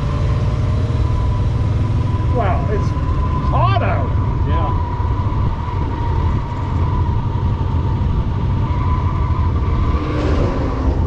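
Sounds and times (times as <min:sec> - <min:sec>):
steady high whine: 0:00.8 - 0:09.6.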